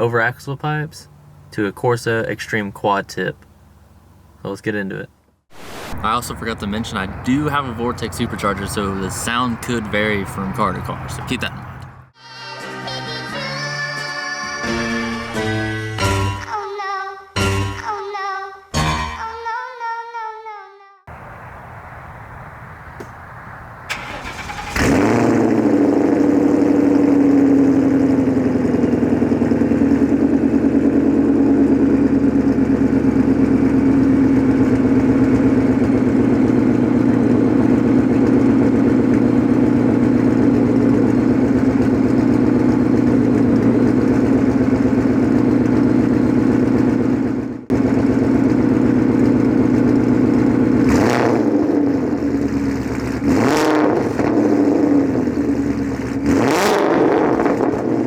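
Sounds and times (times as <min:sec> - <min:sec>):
car engine starting: 0:05.5 - 0:12.2, 0:21.1 - 0:58.0
car engine revving: 0:23.4 - 0:58.0
loud car engine idling: 0:23.9 - 0:53.2, 0:54.2 - 0:56.6.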